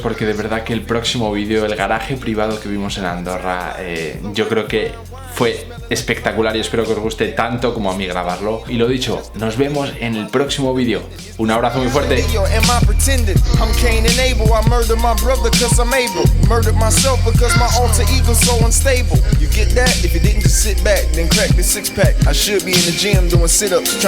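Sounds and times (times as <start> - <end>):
rapping over a heavy bass beat: 0.0 - 24.0.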